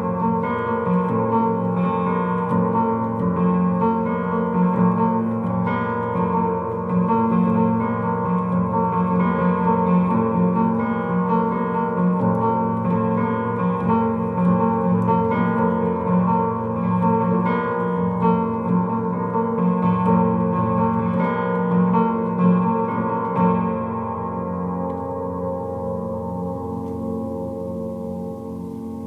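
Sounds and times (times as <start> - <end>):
piano chords: 0.0 - 29.0.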